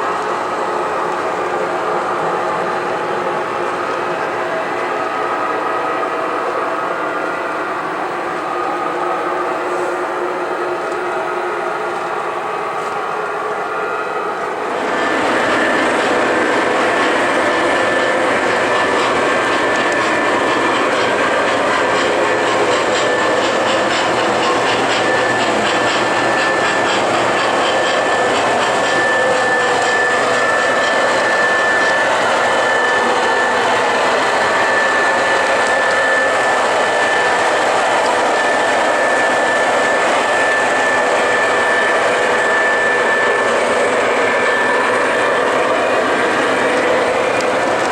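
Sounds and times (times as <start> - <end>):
wheels on track: 14.3 - 47.9
model train motor: 14.7 - 47.9.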